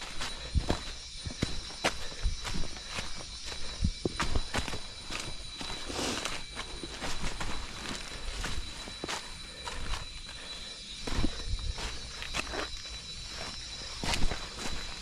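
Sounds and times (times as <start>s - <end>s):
footsteps crunching through leaves: 0.0s - 10.1s, 11.0s - 15.0s.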